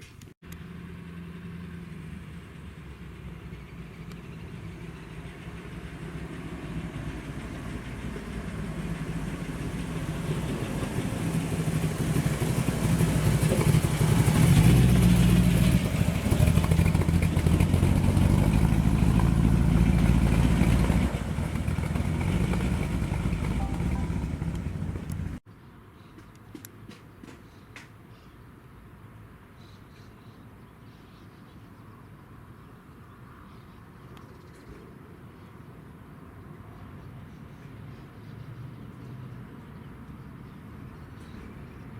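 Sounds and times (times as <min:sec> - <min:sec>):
car engine rumbling: 0:06.7 - 0:25.4.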